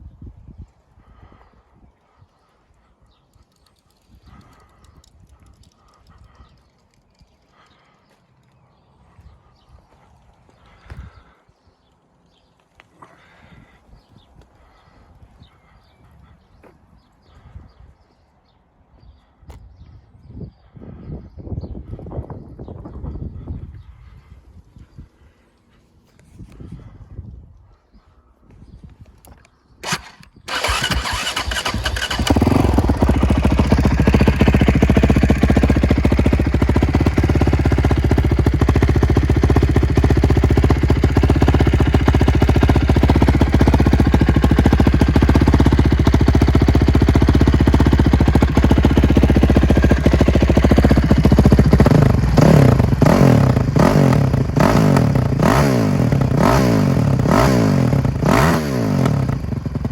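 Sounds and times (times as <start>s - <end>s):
motorcycle engine starting and idling: 3.3s - 8.6s, 29.1s - 59.9s
motorcycle engine throttle blips: 29.2s - 59.9s.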